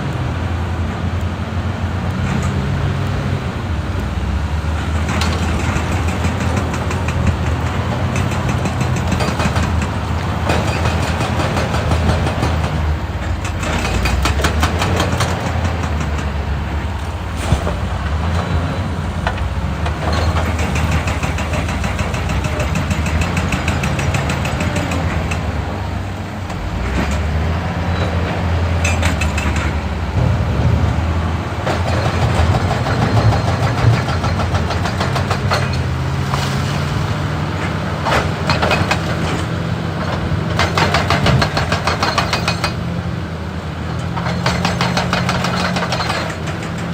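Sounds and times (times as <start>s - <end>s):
diesel engine running: 2.5s - 32.9s
hydraulic breaker hammering rock: 4.9s - 16.4s, 17.0s - 25.5s, 31.6s - 36.1s, 38.0s - 42.9s, 44.0s - 46.9s.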